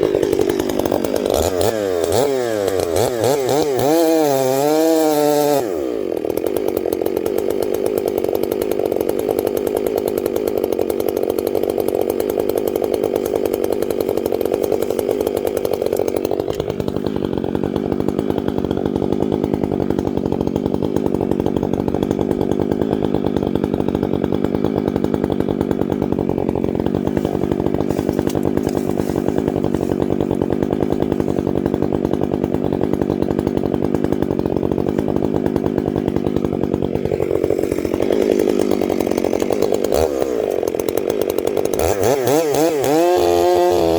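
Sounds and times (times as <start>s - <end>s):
chainsaw cutting: 0.0s - 43.9s.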